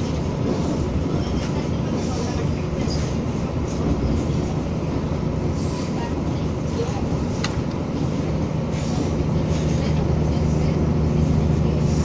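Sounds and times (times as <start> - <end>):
railcar engine drone: 0.0 - 12.0
wheel and rail noise: 0.0 - 12.0.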